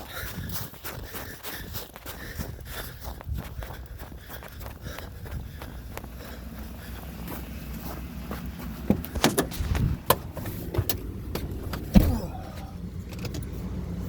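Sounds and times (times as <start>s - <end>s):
car door shutting thump: 8.9s - 11.0s, 11.7s - 12.4s.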